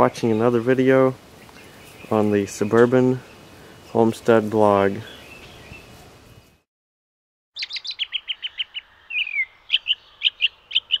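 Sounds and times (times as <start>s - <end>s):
bird singing trills and chirps: 5.0s - 6.5s, 7.6s - 11.0s.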